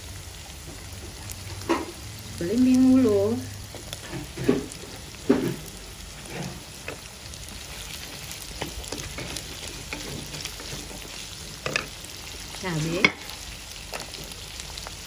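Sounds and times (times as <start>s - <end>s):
vegetables sizzling in oil: 0.0s - 15.0s
spatula scraping a wok: 3.8s - 14.4s.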